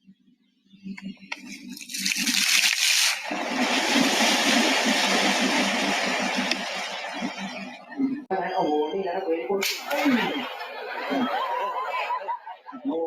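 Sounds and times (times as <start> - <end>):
rushing splashing water: 1.8 - 7.3.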